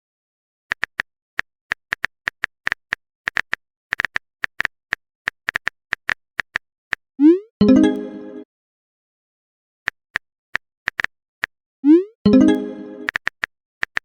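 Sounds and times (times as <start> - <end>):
phone keyboard clicks: 0.7 - 1.0, 1.7 - 4.7, 5.3 - 6.6, 10.9 - 11.1, 13.0 - 14.0.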